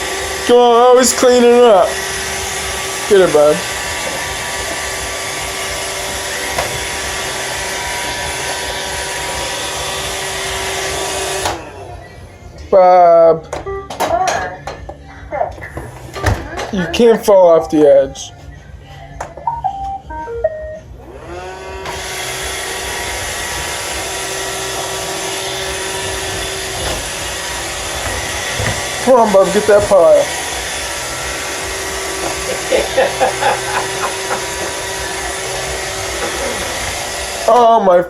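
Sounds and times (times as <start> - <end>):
robot vacuum whirring: 0.0 - 11.8, 21.1 - 37.6
robot vacuum beep tune: 19.4 - 20.8.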